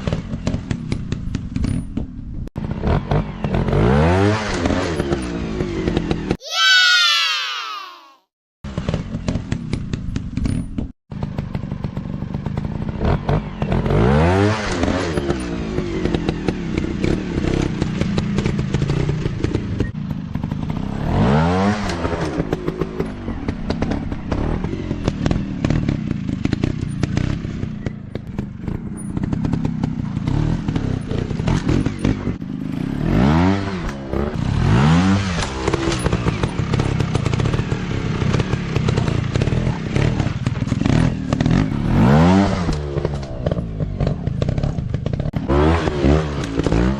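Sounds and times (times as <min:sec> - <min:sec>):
knocks and clatter from bikes: 0:00.0 - 0:06.4, 0:08.7 - 0:46.9
motocross bike engines revving: 0:11.2 - 0:46.9.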